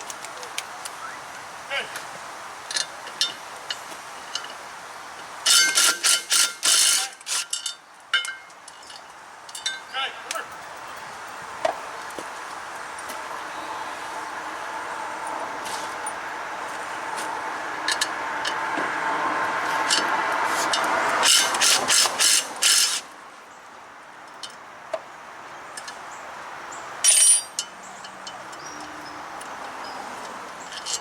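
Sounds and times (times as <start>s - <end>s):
tools clanking on metal: 2.7s - 4.6s, 5.5s - 10.0s, 27.0s - 29.0s, 30.6s - 31.0s.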